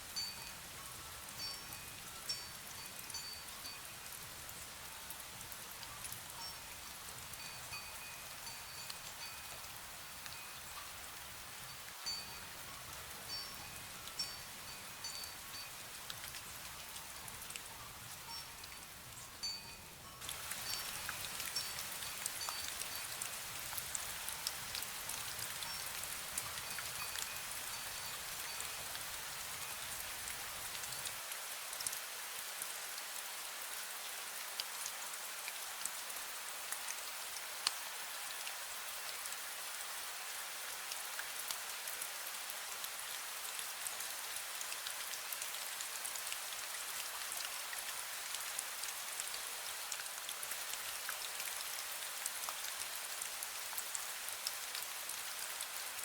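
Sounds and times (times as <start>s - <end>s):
fine rain: 0.0s - 56.0s
wind chime notes: 19.4s - 23.1s.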